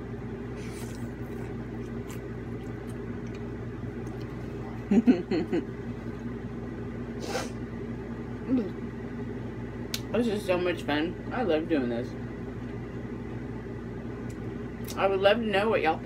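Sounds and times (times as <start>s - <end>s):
steady low hum: 0.0s - 16.0s
chewing clicks and smacks: 0.8s - 4.4s.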